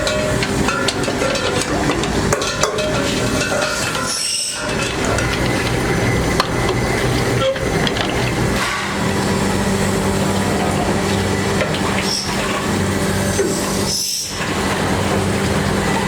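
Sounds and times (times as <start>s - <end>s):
workshop machinery humming: 0.0s - 16.0s.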